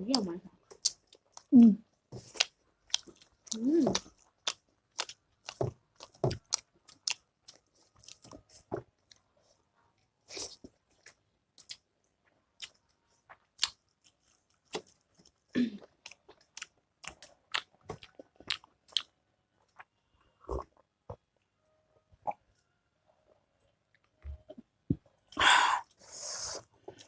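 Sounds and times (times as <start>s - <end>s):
chewing and biting food: 2.2s - 9.3s, 10.3s - 11.9s, 12.6s - 20.9s.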